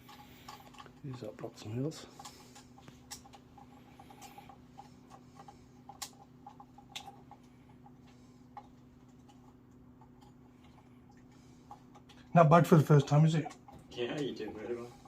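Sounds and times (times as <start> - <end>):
small parts and tools clicking: 0.0 - 12.3
steady low hum: 0.0 - 15.0.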